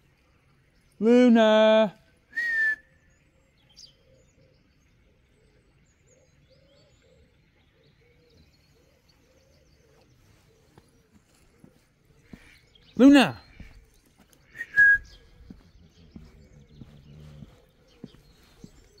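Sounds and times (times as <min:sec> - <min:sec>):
faint birds calling: 0:00.0 - 0:19.0.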